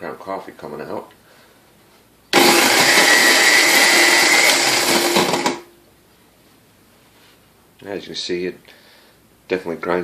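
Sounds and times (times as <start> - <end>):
coffee grinder grinding beans: 2.4 - 5.7.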